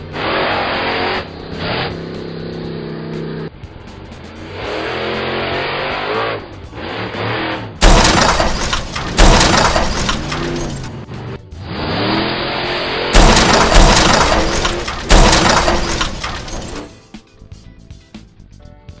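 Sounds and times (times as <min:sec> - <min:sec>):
engine revving: 0:00.0 - 0:16.9
background music: 0:00.8 - 0:19.0
glass shattering: 0:07.8 - 0:10.9, 0:13.2 - 0:16.9
loud crashes: 0:07.8 - 0:10.9, 0:13.2 - 0:16.9.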